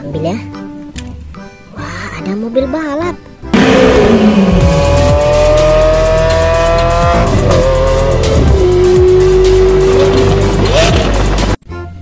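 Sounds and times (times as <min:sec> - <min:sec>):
car engine accelerating hard: 0:03.5 - 0:11.6.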